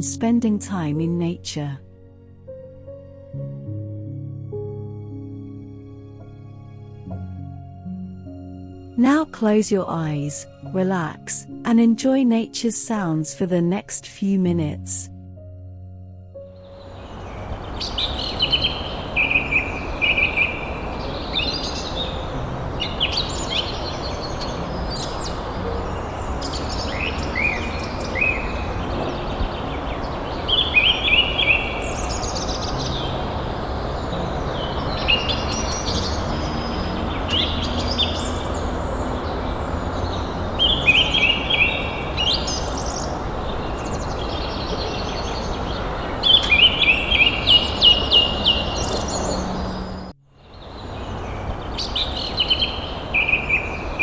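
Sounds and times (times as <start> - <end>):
songbirds chirping and trilling: 16.6 - 54.0
steady background hiss: 16.7 - 54.0.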